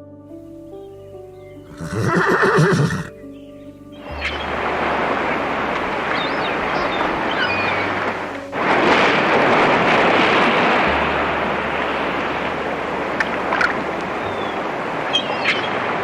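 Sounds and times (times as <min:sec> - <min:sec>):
steady rushing noise: 0:04.0 - 0:16.0.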